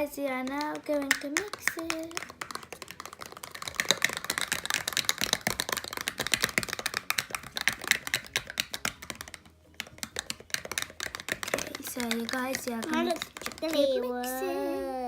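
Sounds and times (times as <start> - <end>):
spoons clicking against tubs: 0.3 - 14.1.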